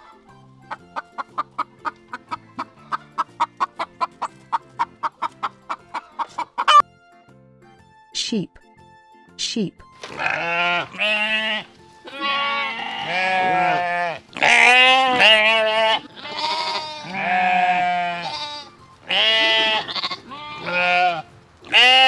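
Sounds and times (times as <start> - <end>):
sheep bleating: 10.1 - 22.0.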